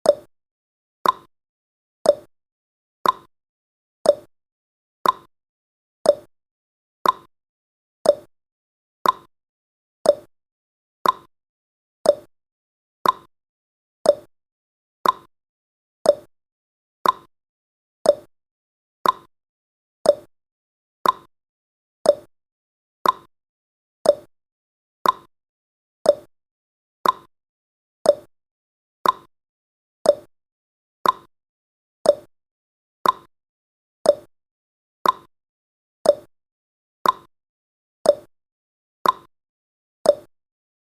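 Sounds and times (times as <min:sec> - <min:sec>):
clock ticking: 0:03.0 - 0:03.3, 0:05.0 - 0:05.3, 0:07.0 - 0:07.3, 0:09.0 - 0:09.3, 0:11.0 - 0:11.3, 0:13.0 - 0:13.3, 0:15.0 - 0:15.3, 0:16.1 - 0:16.3, 0:17.0 - 0:17.3, 0:18.1 - 0:18.3, 0:19.0 - 0:19.3, 0:21.0 - 0:21.3, 0:22.1 - 0:22.3, 0:23.0 - 0:23.3, 0:24.0 - 0:24.3, 0:25.0 - 0:25.3, 0:26.1 - 0:26.3, 0:27.0 - 0:27.3, 0:28.1 - 0:28.3, 0:29.0 - 0:29.3, 0:30.1 - 0:30.3, 0:31.0 - 0:31.3, 0:32.1 - 0:32.3, 0:33.0 - 0:33.3, 0:34.1 - 0:34.3, 0:35.0 - 0:35.3, 0:36.1 - 0:36.3, 0:37.0 - 0:37.3, 0:38.1 - 0:38.3, 0:39.0 - 0:39.3, 0:40.1 - 0:40.3.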